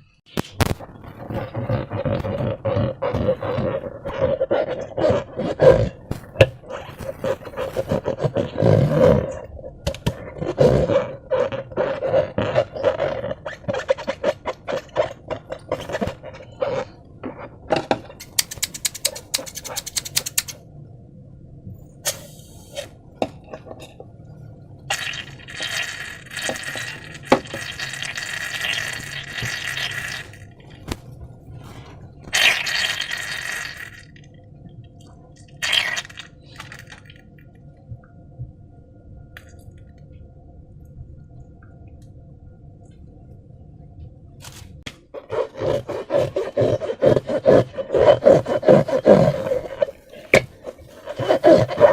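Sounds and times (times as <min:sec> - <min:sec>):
slime squelching: 0:00.4 - 0:20.5, 0:24.9 - 0:34.2, 0:35.4 - 0:37.2, 0:45.1 - 0:51.9.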